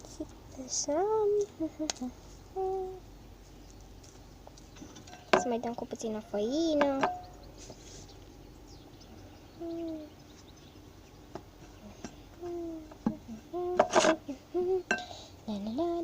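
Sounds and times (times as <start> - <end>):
girl humming: 0.0 - 3.1, 9.6 - 10.2, 11.8 - 16.0.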